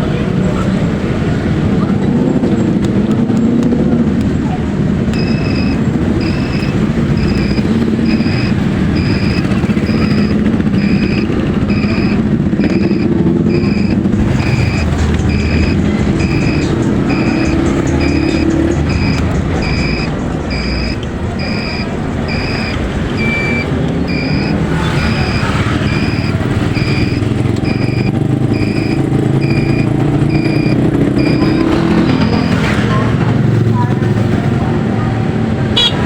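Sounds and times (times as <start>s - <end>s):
vehicle engine running: 0.8s - 36.0s
short high beeps: 5.2s - 32.6s.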